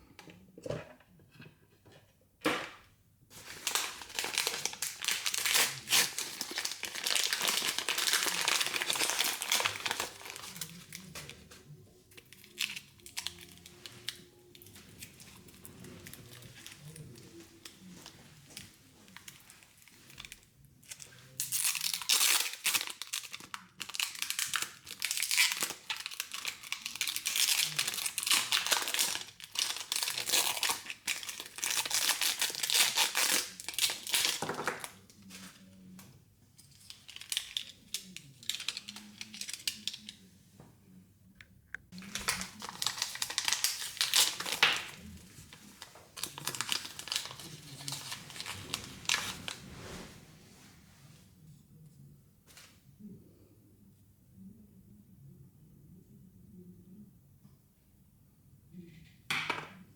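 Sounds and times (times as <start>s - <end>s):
plastic wrapping crinkling and tearing: 3.3s - 35.8s, 36.6s - 40.2s, 42.0s - 50.1s.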